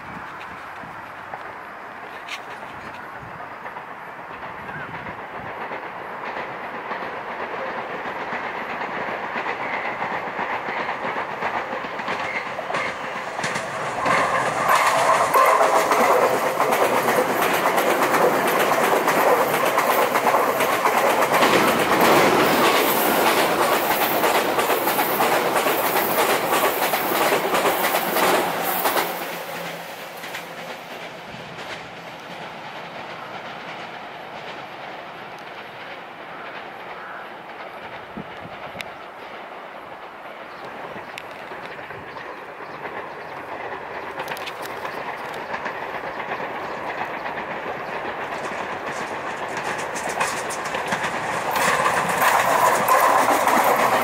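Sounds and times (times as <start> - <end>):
electric train passing: 0.0 - 54.0
wheels clattering over rails: 2.0 - 54.0.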